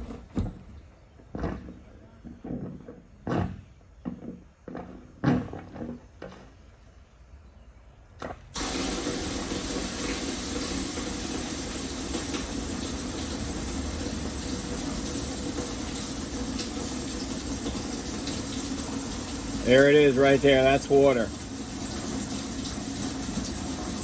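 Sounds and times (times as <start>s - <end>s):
transfer pump running: 8.5s - 24.0s.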